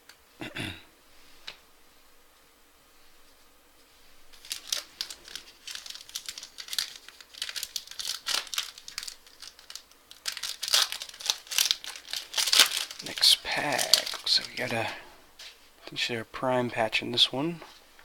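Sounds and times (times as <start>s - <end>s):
card pack wrapper crinkling and tearing: 4.3s - 15.0s.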